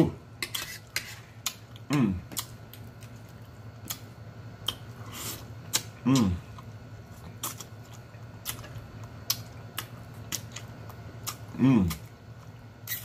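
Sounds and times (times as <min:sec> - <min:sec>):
person chewing with lip-smacks: 0:01.4 - 0:13.0
person humming mm: 0:01.9 - 0:02.2, 0:06.0 - 0:06.5, 0:11.5 - 0:12.0.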